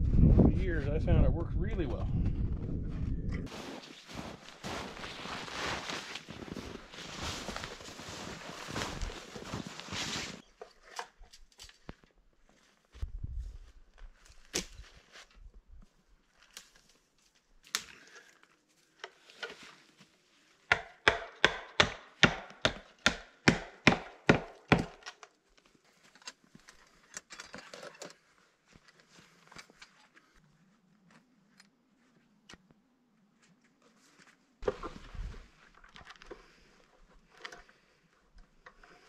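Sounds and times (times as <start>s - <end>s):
rustling: 3.5s - 10.4s.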